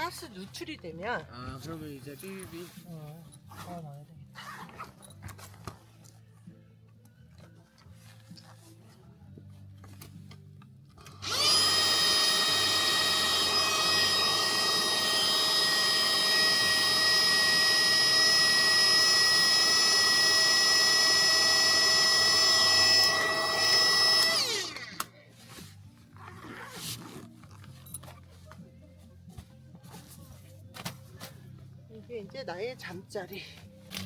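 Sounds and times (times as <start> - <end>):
electric motor whining: 11.1 - 25.1.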